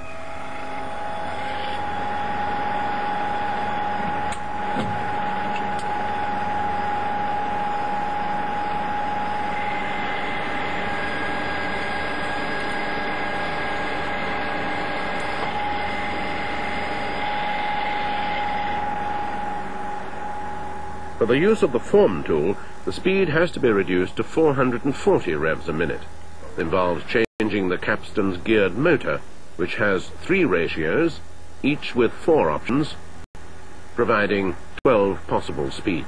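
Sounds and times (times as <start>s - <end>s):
lathe turning a bar: 0.0s - 28.8s
high machine whine: 0.0s - 36.0s
higher whine: 0.0s - 36.0s.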